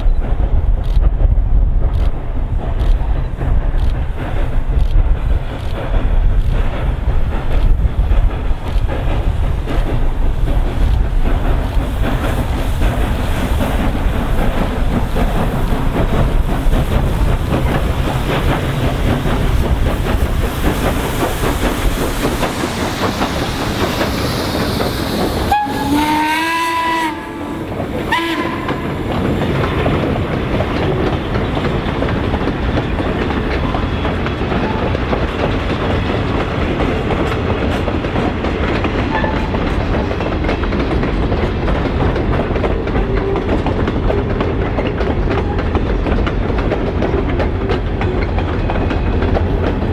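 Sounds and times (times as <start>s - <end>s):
train wheels clattering: 0.0s - 49.9s
train horn toots: 25.5s - 29.0s.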